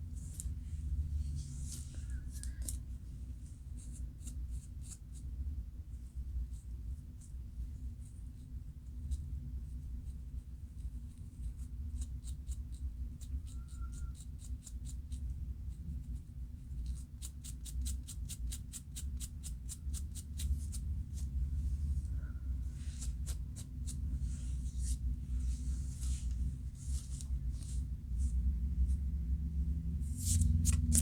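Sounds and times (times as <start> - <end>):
low hum: 20.5 - 31.0
scratching hair: 22.8 - 28.3.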